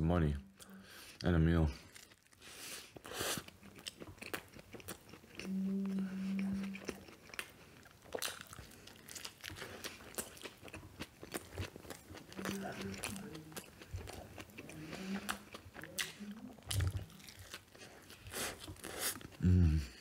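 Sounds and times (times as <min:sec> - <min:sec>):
person chewing food: 0:00.6 - 0:20.0
closed-mouth hum: 0:05.3 - 0:07.3.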